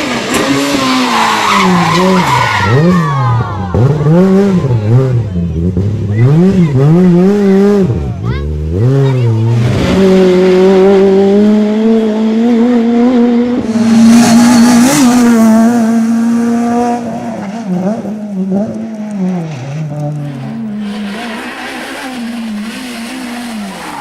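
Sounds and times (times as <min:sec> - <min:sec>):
rally car engine high revs: 0:00.0 - 0:24.0
tyre noise rush: 0:19.6 - 0:24.0.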